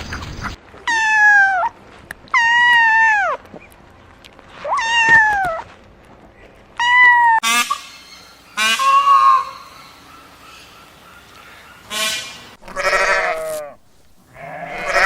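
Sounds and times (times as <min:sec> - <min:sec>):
goat bleating: 0:12.6 - 0:15.0.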